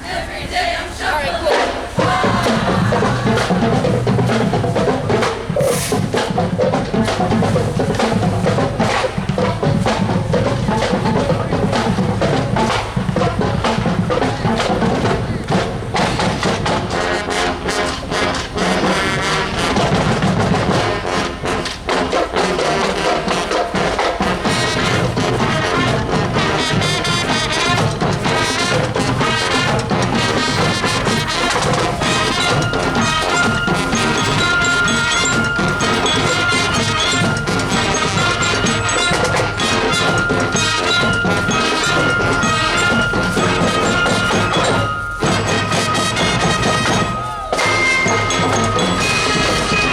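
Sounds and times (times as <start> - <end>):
brass instruments playing: 0.0 - 49.9
drums: 0.0 - 49.9.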